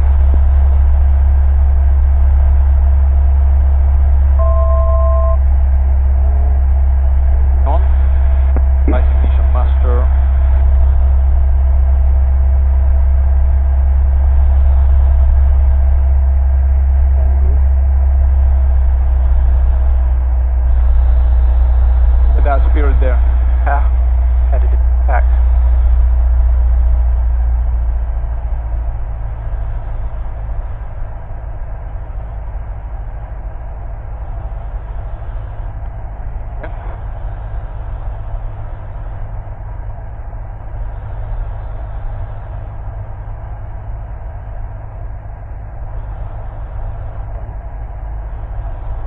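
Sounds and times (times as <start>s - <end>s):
propeller plane engine drone: 0.0s - 49.0s.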